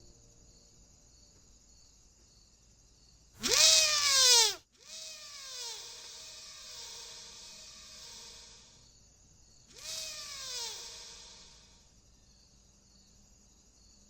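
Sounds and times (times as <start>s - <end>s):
loud wavering cry: 3.4s - 8.8s, 9.7s - 11.8s.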